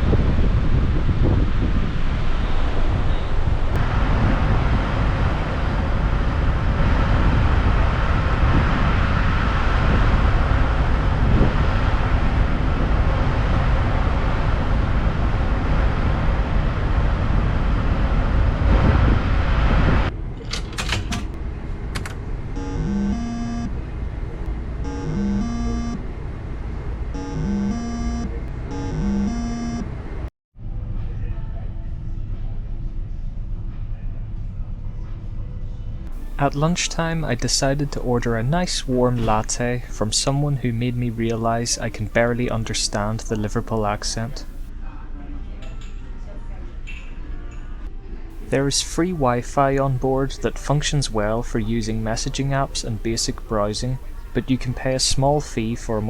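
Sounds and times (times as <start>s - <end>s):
wind buffeting microphone: 0.0s - 13.2s, 18.3s - 20.1s
electronic beeping tones: 22.6s - 23.8s, 24.9s - 26.0s, 27.2s - 29.9s
ship engine rumble: 36.1s - 44.7s, 48.4s - 56.0s.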